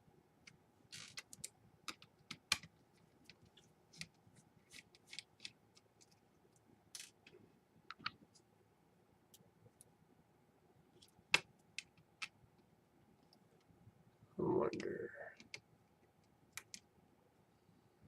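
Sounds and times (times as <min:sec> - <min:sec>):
laptop parts clicking: 0:00.9 - 0:06.2, 0:16.5 - 0:16.8.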